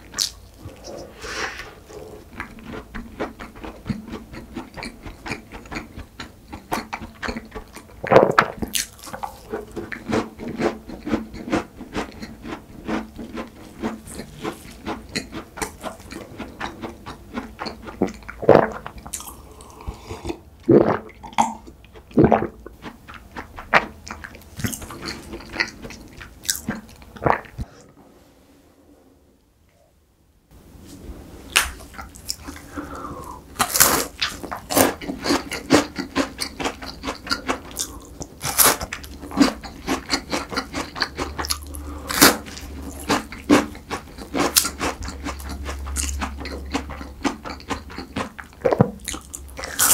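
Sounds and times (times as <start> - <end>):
chewing crisp pastry: 1.8 - 20.4, 21.2 - 27.7, 31.5 - 49.9
swallowing a drink: 32.4 - 33.5.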